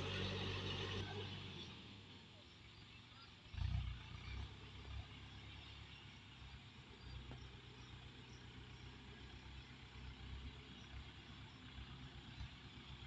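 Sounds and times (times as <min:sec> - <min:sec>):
tractor engine running: 0:00.0 - 0:02.4.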